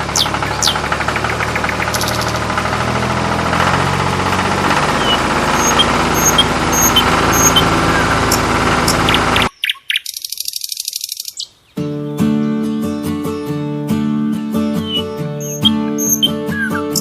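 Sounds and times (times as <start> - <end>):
engine idling: 0.0 - 9.5.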